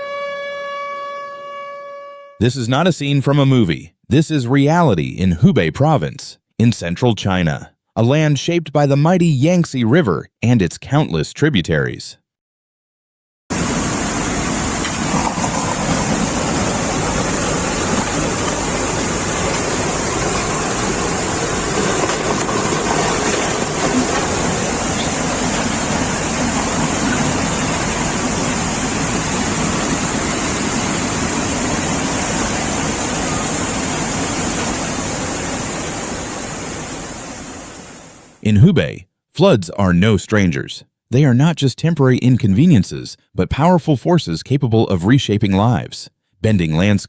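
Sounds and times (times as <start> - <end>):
rush of floodwater: 13.5 - 38.4.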